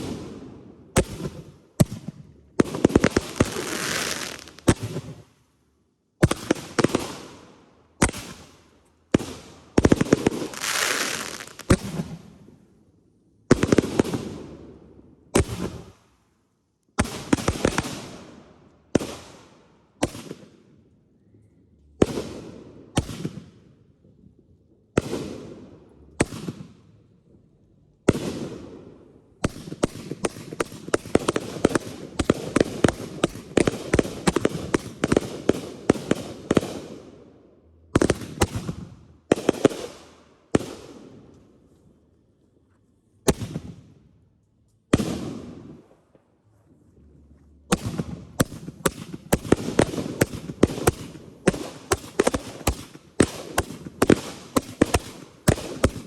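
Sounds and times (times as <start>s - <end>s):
fireworks crackle: 2.6s - 5.2s, 9.9s - 12.1s, 47.7s - 56.0s
fireworks reports: 2.8s - 5.1s, 10.4s - 12.0s.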